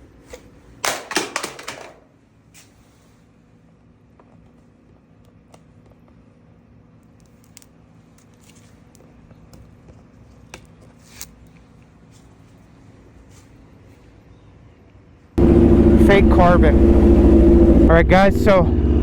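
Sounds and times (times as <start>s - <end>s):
handling clicks and rustles: 0.2s - 3.0s, 4.0s - 14.0s
muffled engine idling: 15.4s - 19.0s.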